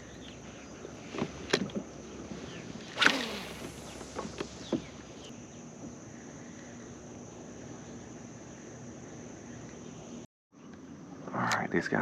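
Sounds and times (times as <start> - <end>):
line running off reel: 2.8 - 5.3
fishing rod swish: 2.9 - 4.6
reel and tackle clicking: 2.9 - 5.3.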